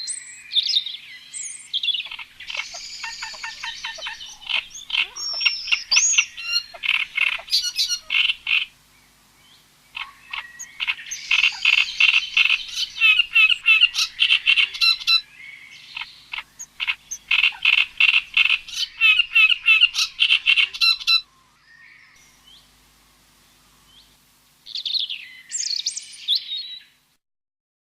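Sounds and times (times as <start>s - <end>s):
rapid high animal chirps: 1.9s - 8.8s, 9.9s - 15.2s, 15.8s - 21.2s
harsh squawking call: 2.0s - 8.8s, 9.9s - 21.3s.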